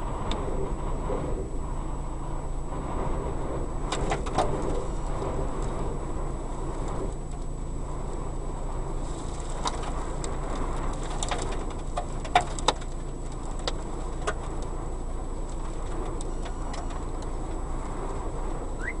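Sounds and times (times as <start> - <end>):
wind rumbling on microphone: 0.0 - 19.0
sharp clicks and knocks: 9.6 - 14.7.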